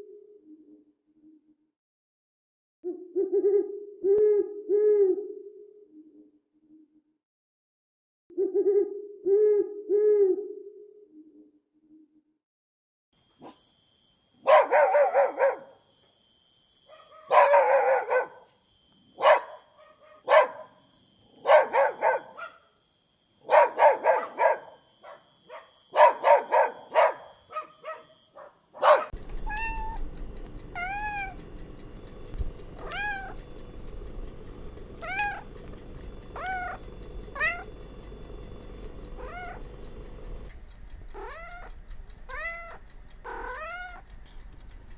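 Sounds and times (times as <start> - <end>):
dog barking: 14.4 - 15.8, 16.9 - 18.5, 19.2 - 20.8, 21.4 - 22.7, 23.4 - 29.9, 35.0 - 35.5, 36.4 - 37.7, 39.2 - 39.6
cat meowing: 29.4 - 30.1, 30.7 - 31.4, 32.8 - 33.5, 35.0 - 35.8, 36.4 - 37.7, 39.2 - 39.6, 41.1 - 44.0.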